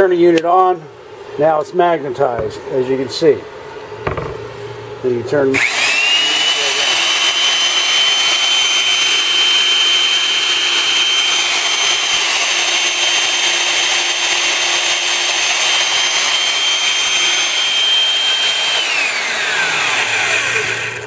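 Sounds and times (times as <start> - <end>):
drill press motor whining: 5.5 - 21.0.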